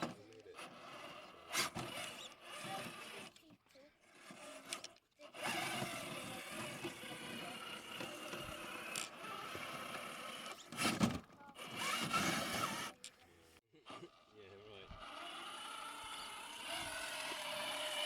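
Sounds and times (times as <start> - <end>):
toy truck motor whirring: 0.0 - 13.2, 13.9 - 18.0
knocks and scrapes: 10.6 - 13.0.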